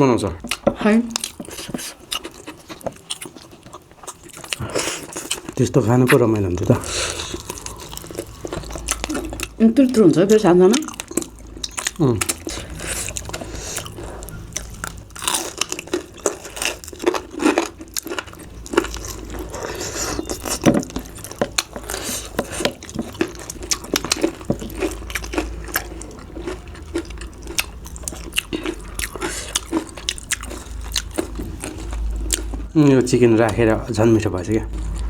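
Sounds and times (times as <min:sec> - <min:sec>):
people chewing and biting food: 0:00.4 - 0:34.0, 0:34.6 - 0:35.0.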